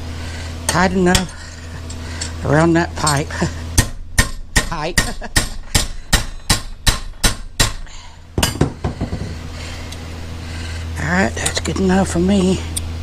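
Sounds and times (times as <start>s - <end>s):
hammer striking steel rod: 3.8s - 9.2s.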